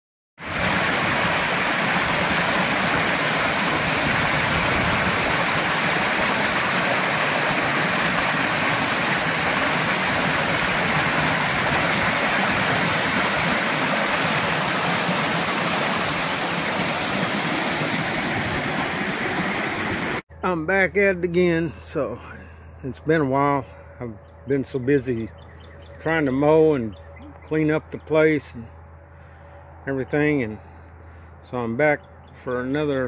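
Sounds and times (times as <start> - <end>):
running water rushing: 0.4 - 20.2.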